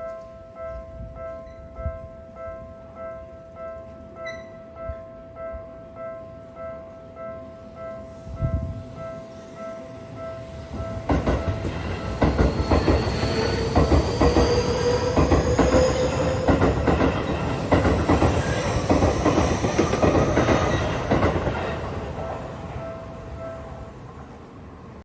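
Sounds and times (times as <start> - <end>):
crossing warning bell: 0.0 - 24.6
electric train whine: 7.6 - 25.0
train wheels clacking: 10.4 - 23.8.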